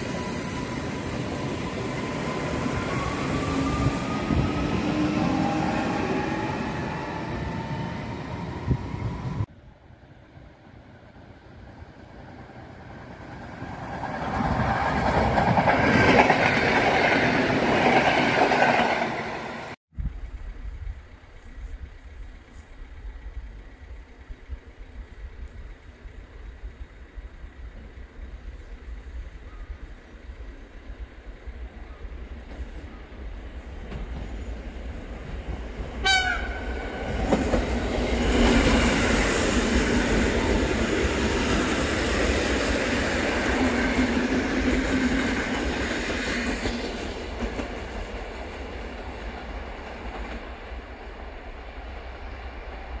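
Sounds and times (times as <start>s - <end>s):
train rushing past: 0.0s - 9.5s, 10.3s - 19.8s, 22.5s - 53.0s
train horn toot: 36.0s - 37.0s.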